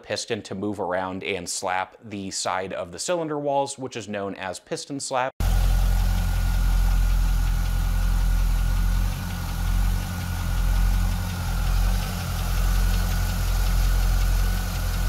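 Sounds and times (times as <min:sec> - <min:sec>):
engine running with rapid knocking: 0:05.4 - 0:15.0.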